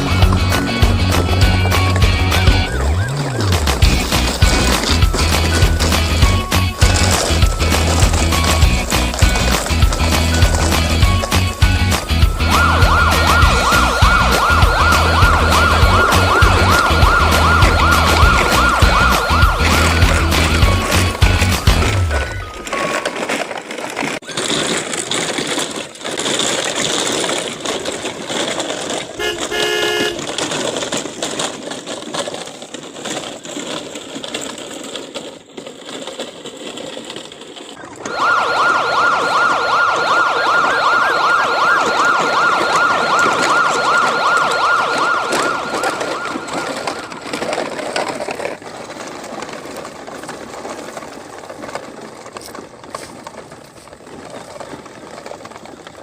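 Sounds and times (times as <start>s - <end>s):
police siren warbling: 0.0s - 6.4s, 12.0s - 23.2s, 37.8s - 47.6s
horn toot: 29.2s - 30.4s.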